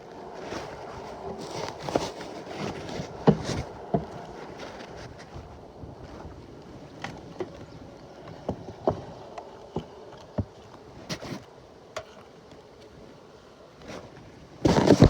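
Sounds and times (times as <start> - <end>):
fabric rustling: 0.3 - 6.2, 14.6 - 15.0.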